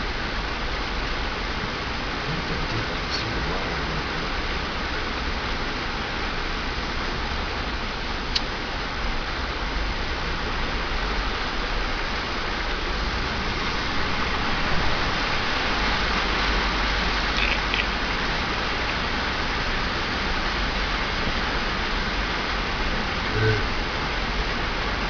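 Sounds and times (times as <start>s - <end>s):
low vehicle rumble: 0.0s - 25.0s
tires rushing on wet road: 0.0s - 25.0s.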